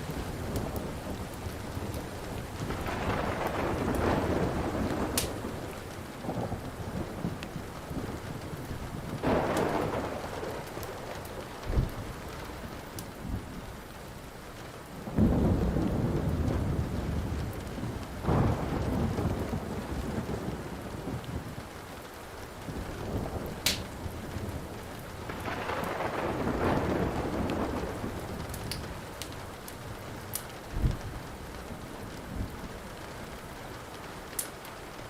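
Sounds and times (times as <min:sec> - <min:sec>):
thunder rolling: 0:00.0 - 0:13.6, 0:15.1 - 0:21.6, 0:22.6 - 0:32.7
steady rain: 0:00.0 - 0:35.0
wood fire crackling: 0:00.0 - 0:35.0.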